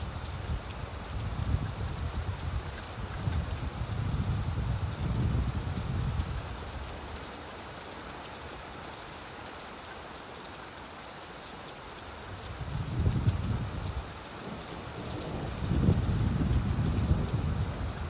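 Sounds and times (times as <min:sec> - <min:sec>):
rain hissing: 0:12.0 - 0:18.0
low thunder rumble: 0:12.7 - 0:18.0.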